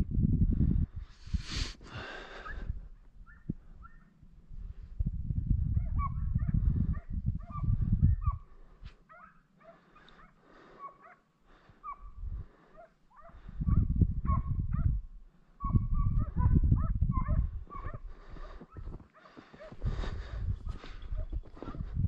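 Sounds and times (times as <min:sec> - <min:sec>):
hounds yelping and baying: 0:03.2 - 0:04.2, 0:05.8 - 0:19.8, 0:20.7 - 0:22.0.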